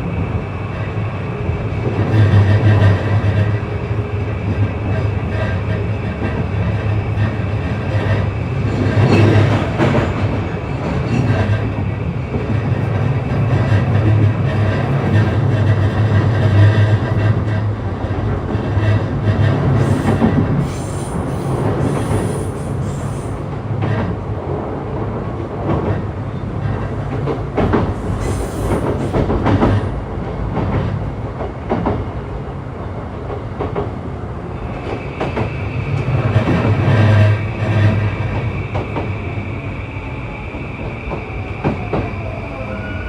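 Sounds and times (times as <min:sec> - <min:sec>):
train interior low hum: 0:00.0 - 0:43.0
rail-joint clicks: 0:01.8 - 0:24.3, 0:25.2 - 0:32.1
high-pitched wheel squeal: 0:39.2 - 0:43.0.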